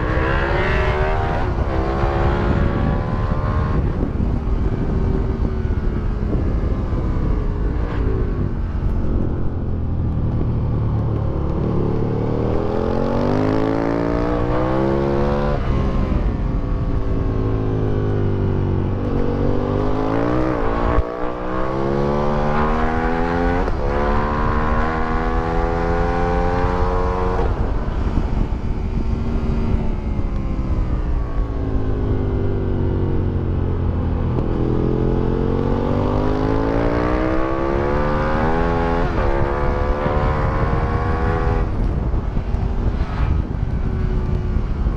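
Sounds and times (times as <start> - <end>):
motorcycle engine revving hard: 34.4 - 43.0.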